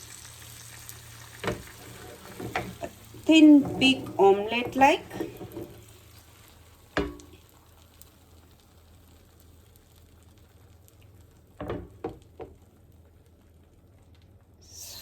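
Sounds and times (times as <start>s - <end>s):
egg sizzling in frying pan: 0.0s - 15.0s
utensil knocking on pan: 7.0s - 7.3s.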